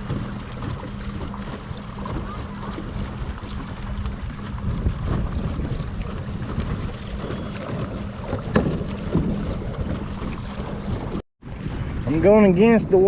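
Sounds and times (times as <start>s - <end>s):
water splashing against hull: 0.0s - 13.0s
wind buffeting microphone: 0.0s - 13.0s.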